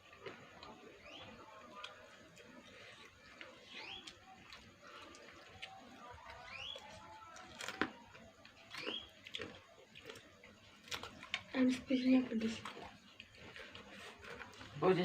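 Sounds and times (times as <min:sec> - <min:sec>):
bird chirping: 0:00.9 - 0:01.4, 0:02.7 - 0:04.6, 0:05.6 - 0:07.2, 0:08.7 - 0:09.4.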